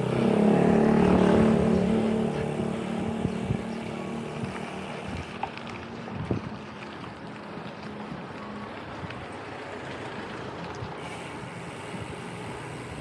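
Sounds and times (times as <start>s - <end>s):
vehicle engine running: 0.0s - 6.0s, 11.0s - 13.0s.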